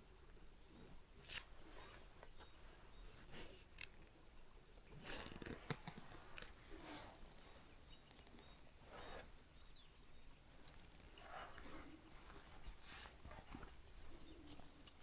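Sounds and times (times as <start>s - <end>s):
small bird chirping: 0.6s - 15.0s
soft rustles: 4.8s - 9.8s, 10.4s - 15.0s.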